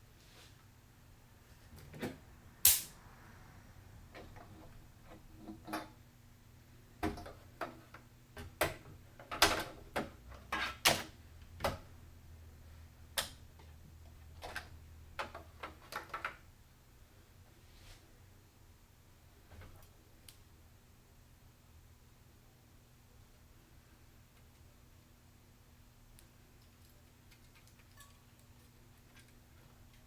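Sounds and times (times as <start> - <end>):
faint low hum: 16.0 - 30.0.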